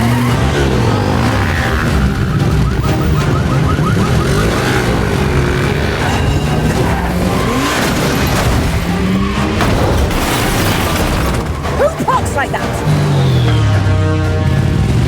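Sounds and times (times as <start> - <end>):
car engine revving hard: 0.0 - 11.8.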